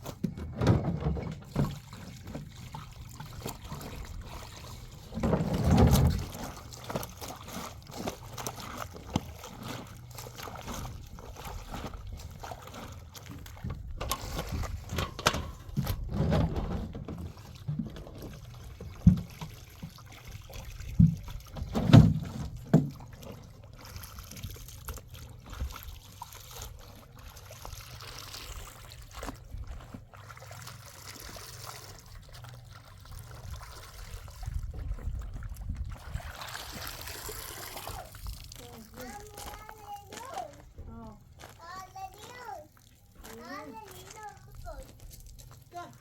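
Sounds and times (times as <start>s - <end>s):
water trickling: 17.1s - 46.0s.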